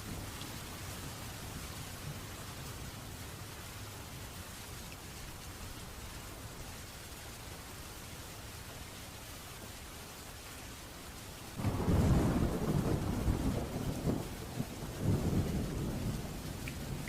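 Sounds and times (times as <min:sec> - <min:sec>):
rain hissing: 0:00.0 - 0:17.0
thunder rumbling: 0:11.6 - 0:17.0.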